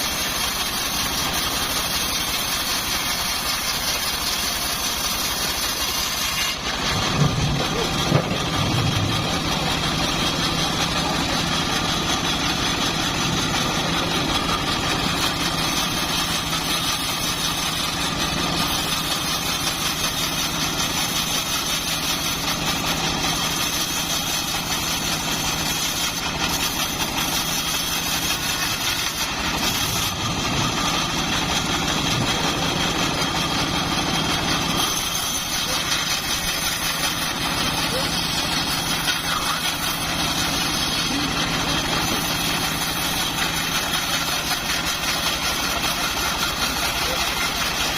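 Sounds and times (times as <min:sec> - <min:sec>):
bandsaw mill droning: 0:00.0 - 0:47.9.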